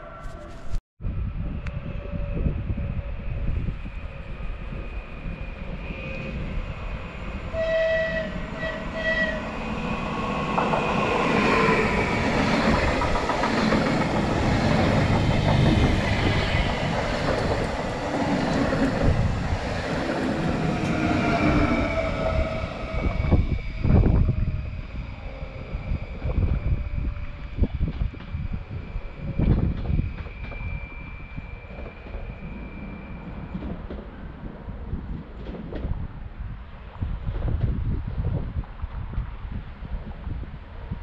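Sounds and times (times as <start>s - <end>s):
train rumbling past: 0.0s - 41.0s
train horn blasts: 7.5s - 9.5s
wheels clattering on rails: 11.9s - 19.2s.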